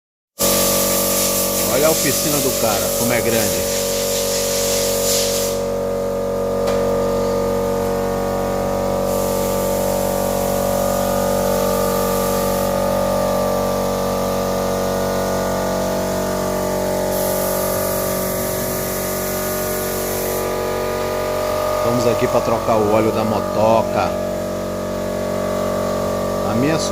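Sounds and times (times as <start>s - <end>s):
hiss: 0.4s - 5.7s, 9.1s - 10.6s, 17.1s - 20.5s
machine droning: 5.6s - 26.9s.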